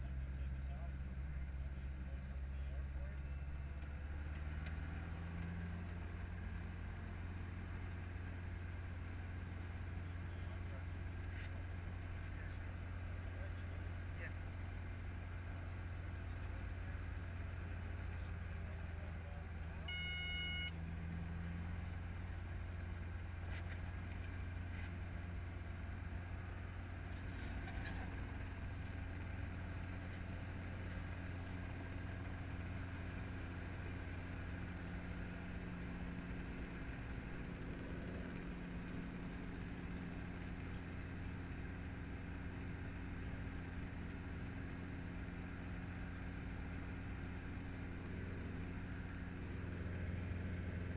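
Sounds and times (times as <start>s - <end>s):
helicopter engine and rotor drone: 0.0s - 24.6s, 26.3s - 50.9s
short electronic beep: 19.9s - 20.8s.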